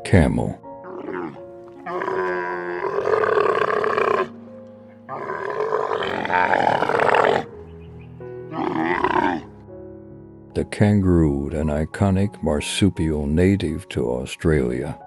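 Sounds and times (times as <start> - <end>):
background music: 0.0 - 15.0
camel groaning calls: 0.8 - 7.6, 8.5 - 9.5.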